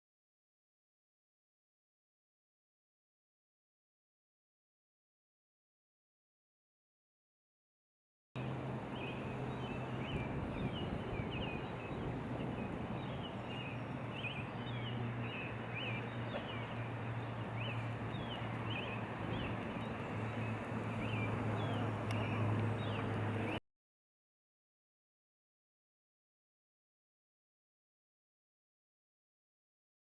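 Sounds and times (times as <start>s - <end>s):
small birds chirping: 8.4s - 23.6s.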